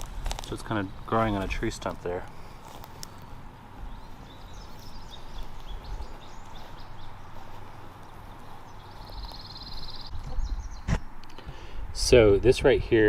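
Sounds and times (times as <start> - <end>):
low outdoor noise: 0.0 - 13.0
songbirds chirping: 0.0 - 13.0
bird trill: 3.1 - 11.5.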